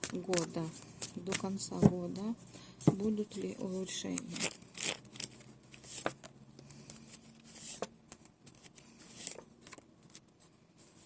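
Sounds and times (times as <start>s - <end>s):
cards rustling and tapping: 0.0s - 2.1s.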